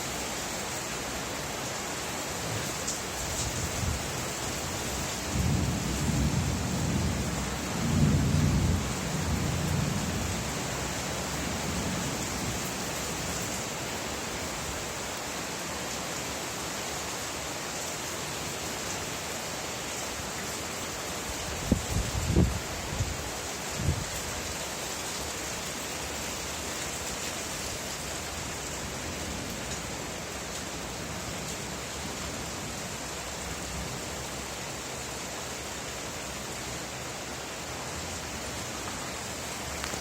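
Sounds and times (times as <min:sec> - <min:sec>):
rain falling: 0:00.0 - 0:40.0
thunder rumbling: 0:05.4 - 0:10.8.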